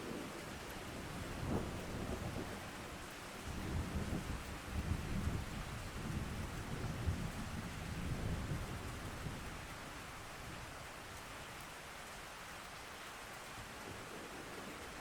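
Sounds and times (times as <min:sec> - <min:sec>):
low rumble of thunder: 0:00.0 - 0:10.7
steady rain: 0:00.0 - 0:15.0.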